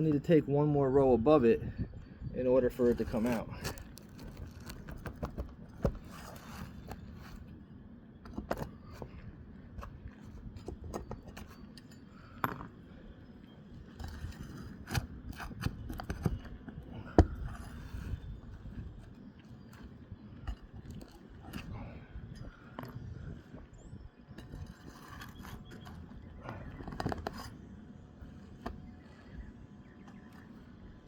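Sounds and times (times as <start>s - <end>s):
hand tool scraping under shingles: 2.6s - 7.5s, 13.8s - 21.8s, 24.4s - 27.6s.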